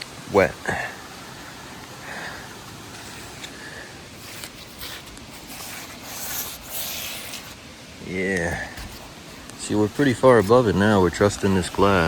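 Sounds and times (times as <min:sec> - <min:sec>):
light rain hissing: 0:00.0 - 0:12.0
clothing rustle: 0:02.8 - 0:07.7.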